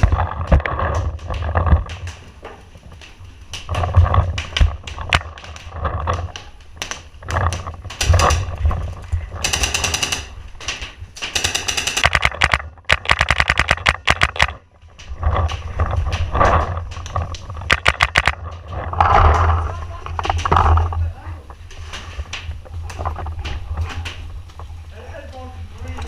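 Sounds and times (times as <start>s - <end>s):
paintball markers firing: 9.4s - 14.6s.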